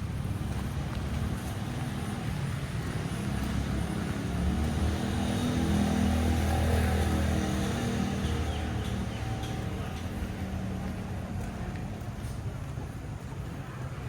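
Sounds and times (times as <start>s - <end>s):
vehicle engine approaching: 2.8s - 11.1s.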